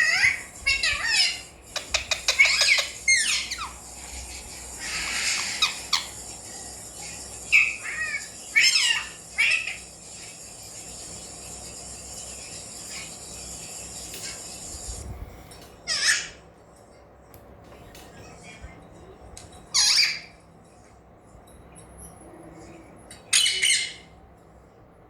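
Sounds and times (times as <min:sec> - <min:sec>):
parakeet squawking: 0:00.0 - 0:10.4, 0:19.8 - 0:20.3, 0:23.3 - 0:24.1.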